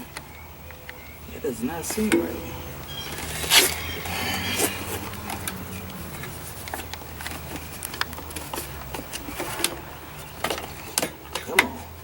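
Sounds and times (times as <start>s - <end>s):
small parts clicking and tapping: 4.6s - 12.0s.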